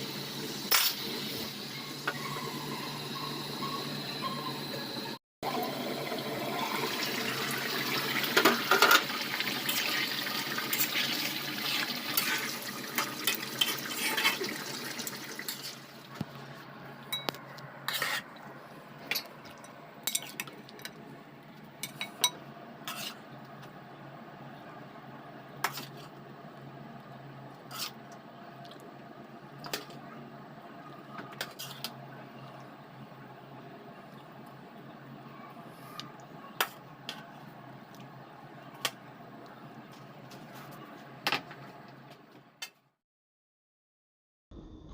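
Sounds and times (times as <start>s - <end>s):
metal spoon clinking on pot: 17.1s - 17.4s.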